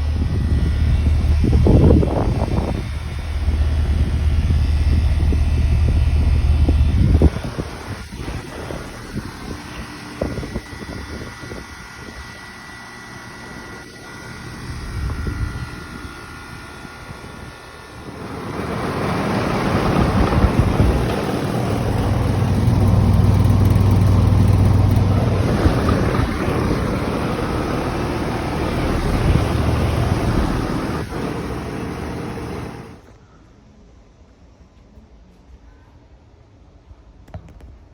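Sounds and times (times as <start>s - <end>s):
condenser fan rushing air: 0.0s - 33.2s
low compressor hum: 0.0s - 33.2s.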